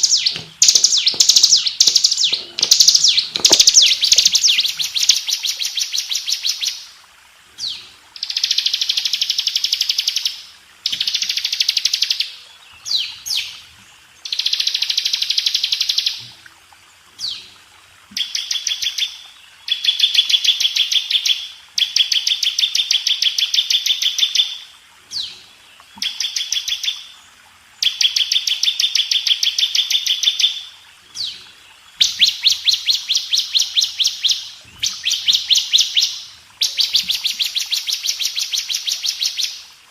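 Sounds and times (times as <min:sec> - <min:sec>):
bird singing high trills: 0:00.0 - 0:05.4.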